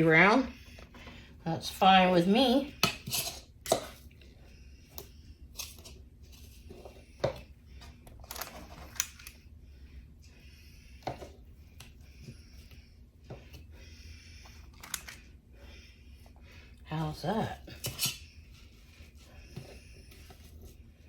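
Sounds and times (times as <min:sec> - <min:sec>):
cookie scoop scraping: 0:02.8 - 0:04.1, 0:05.5 - 0:07.0, 0:17.0 - 0:18.4.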